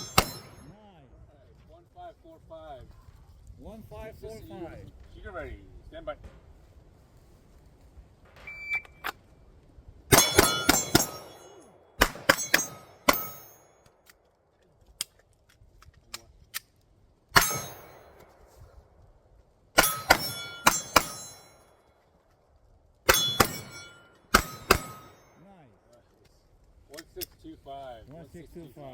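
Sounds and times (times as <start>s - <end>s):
pistol shots: 0.0s - 0.7s, 10.1s - 13.6s, 17.4s - 18.2s, 19.8s - 21.5s, 23.1s - 25.2s
steel targets clanging: 0.0s - 0.8s, 10.1s - 13.8s, 17.4s - 18.2s, 19.8s - 21.8s, 23.1s - 25.4s
shot timer beep: 8.4s - 9.1s.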